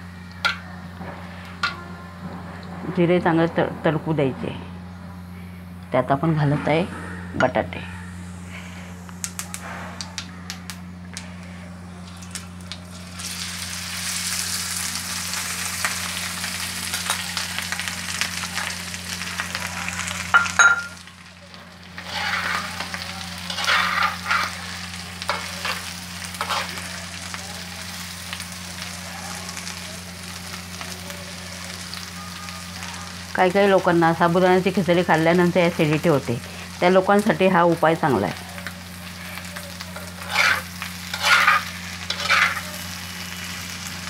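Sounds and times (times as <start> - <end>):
potatoes sizzling in hot oil: 12.0 - 44.0
metal spoon scraping a pan: 22.0 - 26.8, 39.3 - 42.8.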